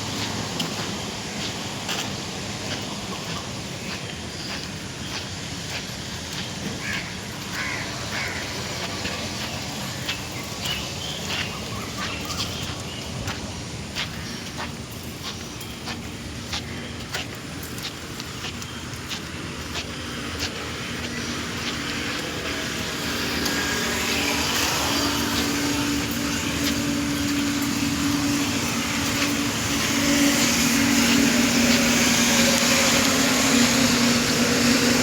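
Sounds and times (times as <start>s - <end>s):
motor droning: 18.6s - 35.0s.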